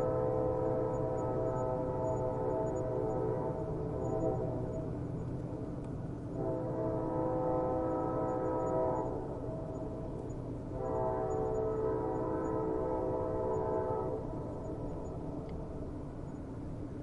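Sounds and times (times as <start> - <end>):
train horn blasts: 0.0 - 4.8, 6.3 - 9.5, 10.7 - 14.6
low rumble of train: 0.0 - 17.0.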